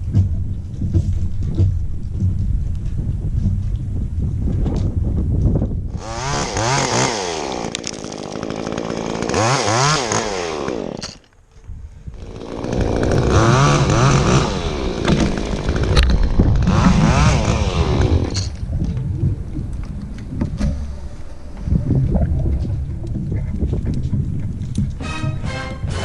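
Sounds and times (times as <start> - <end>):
chainsaw engine revving: 5.9 - 11.3, 12.1 - 18.6.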